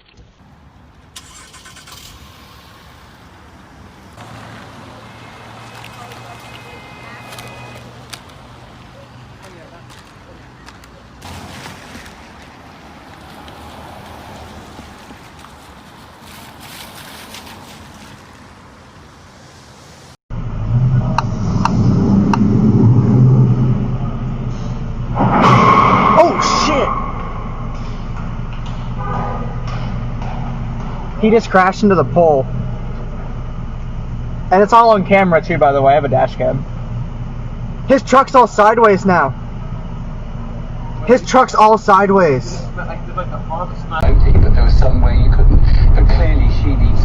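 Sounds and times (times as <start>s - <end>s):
car engine and road noise: 0.0s - 47.0s
faint road hiss: 0.4s - 20.2s
steady low hum: 20.3s - 47.0s.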